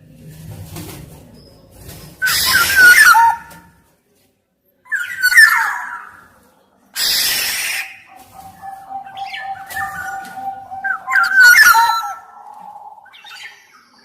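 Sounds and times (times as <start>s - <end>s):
bird fluty whistled calls: 2.2s - 3.5s, 7.0s - 14.0s.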